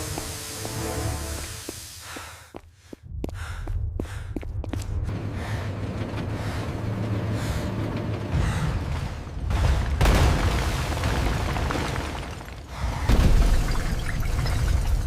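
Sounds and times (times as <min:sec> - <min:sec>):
rushing hiss: 0:00.0 - 0:02.3
deep rumbling: 0:03.0 - 0:15.0.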